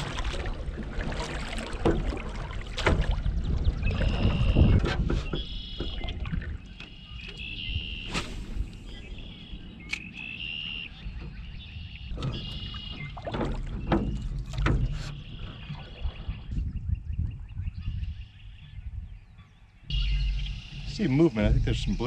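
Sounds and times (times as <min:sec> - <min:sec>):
knocks of oars: 0:00.0 - 0:08.0, 0:09.9 - 0:16.7
low rumble of wind and water: 0:00.0 - 0:22.0
oars squeaking in oarlocks: 0:03.9 - 0:09.0, 0:09.9 - 0:16.2.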